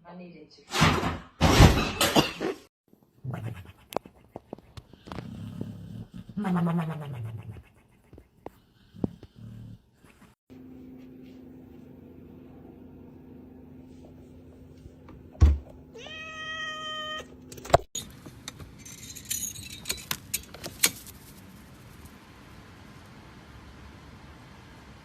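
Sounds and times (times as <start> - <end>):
cat meowing: 15.9 - 17.3.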